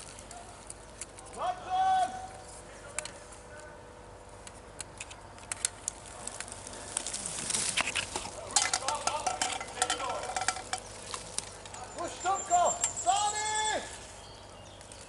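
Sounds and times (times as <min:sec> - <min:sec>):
crackling and rustling: 0:00.0 - 0:01.4, 0:04.3 - 0:11.9.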